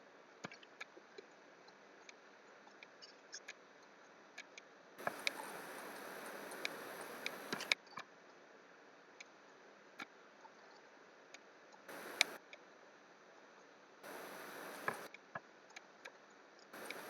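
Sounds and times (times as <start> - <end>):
mouse and keyboard clicks: 5.0 - 7.8, 11.9 - 12.4
short rustling hiss: 5.0 - 7.8, 11.9 - 12.4, 14.0 - 15.1, 16.8 - 17.0.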